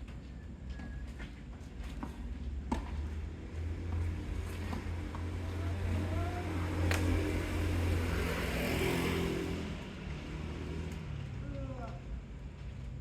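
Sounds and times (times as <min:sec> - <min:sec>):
vehicle engine rumble passing: 0:03.0 - 0:13.0
sharp crack: 0:06.8 - 0:07.4.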